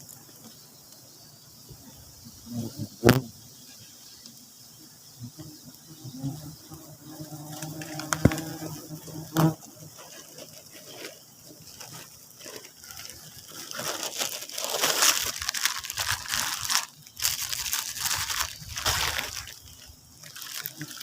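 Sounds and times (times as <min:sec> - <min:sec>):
rustling and crinkling handling: 0:07.4 - 0:21.0.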